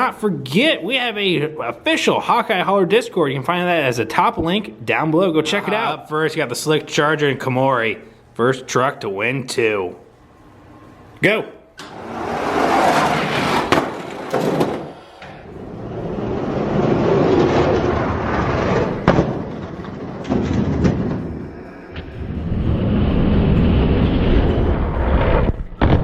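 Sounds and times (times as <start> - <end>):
toy trucks rolling on plastic track: 11.9 - 15.0, 15.6 - 21.4.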